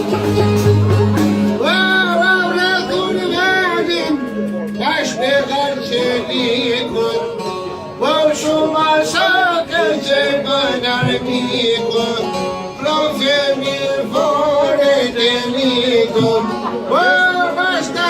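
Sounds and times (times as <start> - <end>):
man singing folk song: 1.5 - 18.0.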